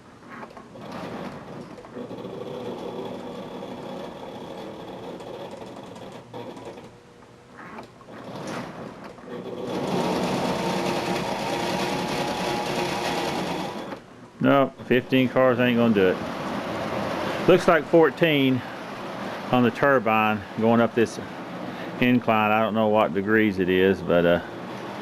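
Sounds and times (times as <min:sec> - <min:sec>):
model train wheels on track: 0:00.9 - 0:06.9.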